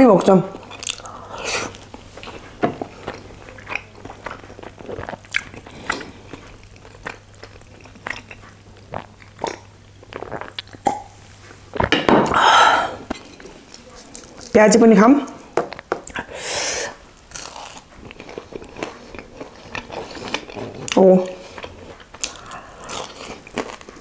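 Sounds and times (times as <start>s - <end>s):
wet chewing and lip smacks: 1.7s - 11.0s.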